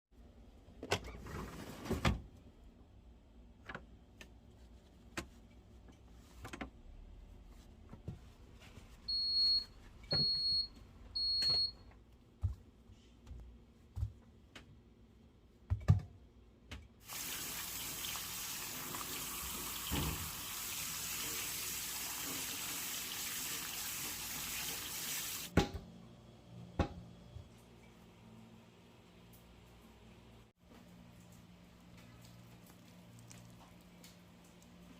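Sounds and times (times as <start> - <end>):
kitchen knocks and clatter: 15.7 - 16.9
water tap running into sink: 17.0 - 25.5.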